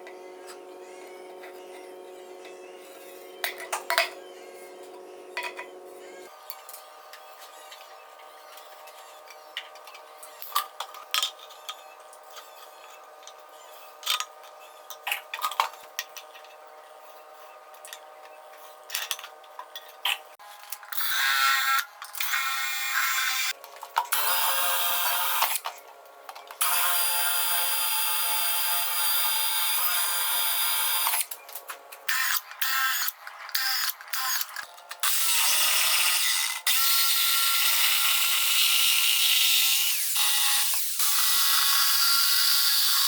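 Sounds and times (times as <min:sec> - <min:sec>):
hand tools clicking and scraping: 0:31.1 - 0:35.2.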